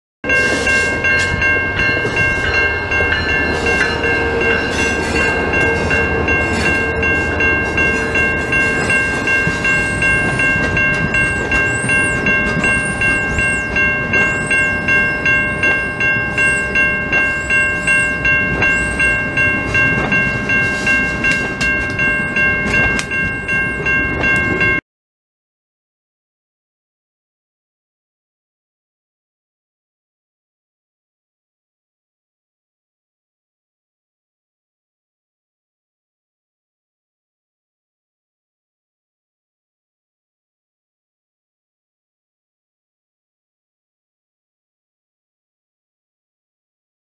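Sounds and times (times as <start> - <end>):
warning bell ringing: 0.2 - 24.8
passenger train rumbling past: 0.3 - 24.8.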